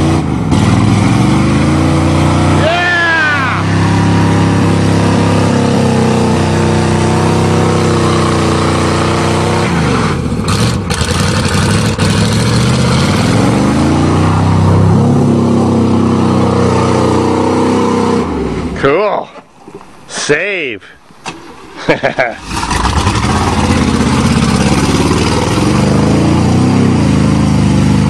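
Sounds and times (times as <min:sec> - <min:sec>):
pickup truck engine revving: 0:00.0 - 0:18.8, 0:22.0 - 0:28.0.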